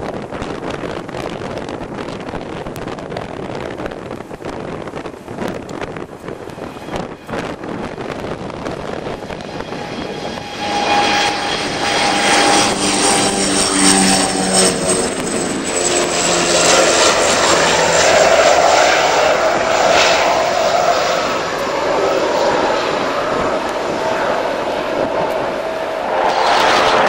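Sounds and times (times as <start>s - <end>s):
aircraft flying past: 5.4s - 27.0s.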